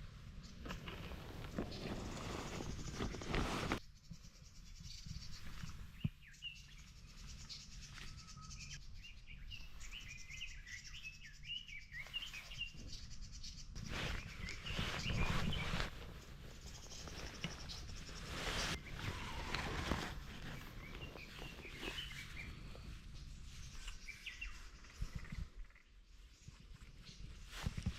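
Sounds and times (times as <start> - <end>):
small birds chirping: 0.0 - 27.9
rustling handling noise: 0.6 - 3.8, 13.8 - 22.4.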